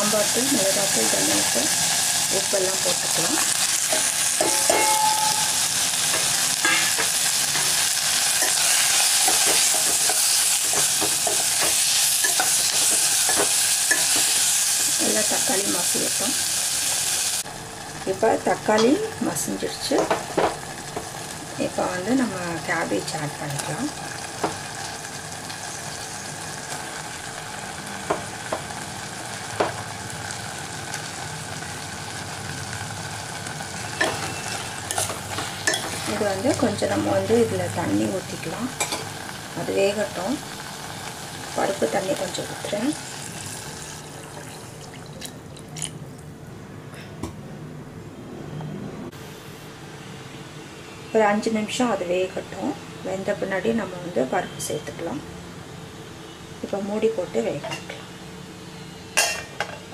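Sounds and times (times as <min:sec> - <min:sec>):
food sizzling in hot oil: 0:00.0 - 0:46.0
spoon knocking against pan: 0:03.9 - 0:05.5
spoon scraping and tapping a pan: 0:03.9 - 0:07.8.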